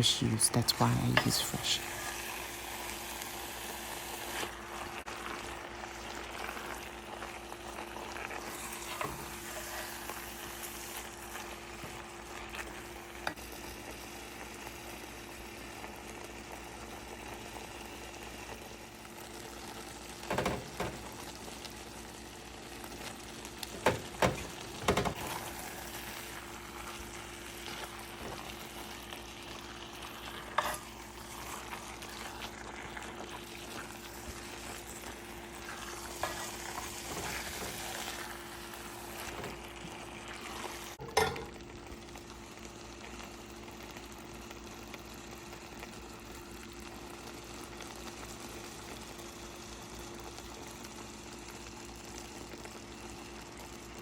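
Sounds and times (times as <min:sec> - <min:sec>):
food sizzling in a pot: 0:00.0 - 0:54.0
spoon knocking against pot: 0:23.7 - 0:25.4, 0:41.0 - 0:41.6.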